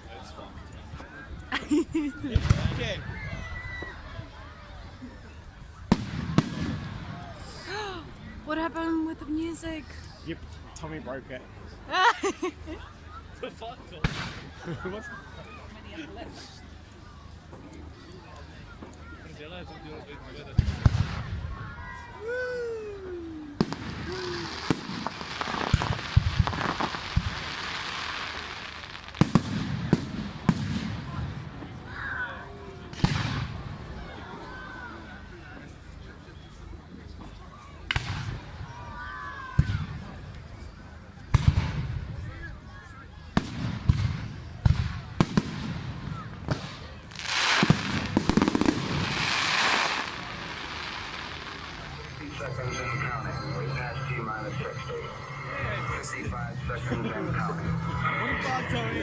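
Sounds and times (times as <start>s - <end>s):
fireworks bangs: 2.2s - 3.1s, 5.9s - 7.2s, 14.0s - 14.6s, 23.6s - 31.8s, 43.4s - 59.0s
fireworks crackling: 5.8s - 7.7s, 14.0s - 14.7s, 23.4s - 31.9s, 45.2s - 59.0s
firework hissing rush: 47.1s - 56.2s.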